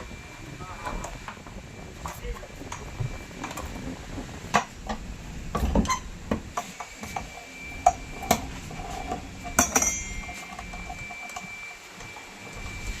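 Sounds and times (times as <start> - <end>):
metal tools clinking: 9.6 - 10.6.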